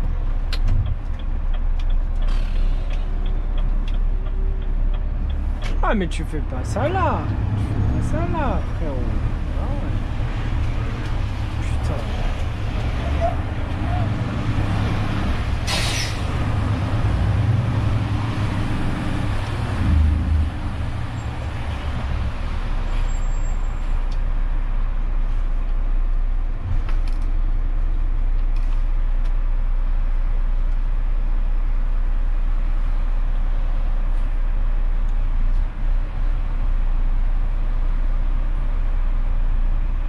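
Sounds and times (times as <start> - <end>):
air brakes hissing: 2.3 - 3.1, 15.6 - 16.3.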